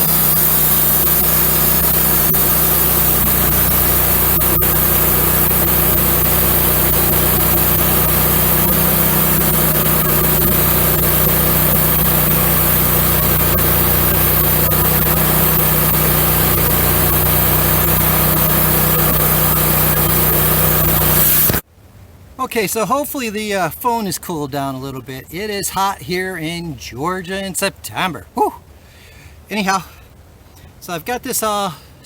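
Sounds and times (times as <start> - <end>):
bandsaw mill cutting log: 0.0 - 21.6.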